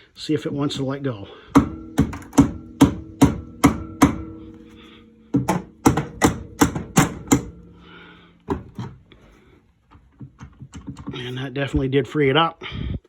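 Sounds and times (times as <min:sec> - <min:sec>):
rubber mallet striking metal: 0:01.5 - 0:09.2.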